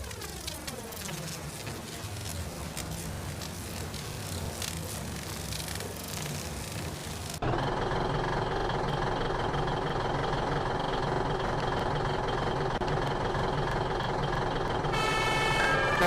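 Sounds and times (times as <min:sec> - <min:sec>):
fire truck engine idling: 0:00.1 - 0:16.0
siren wailing: 0:14.9 - 0:16.0.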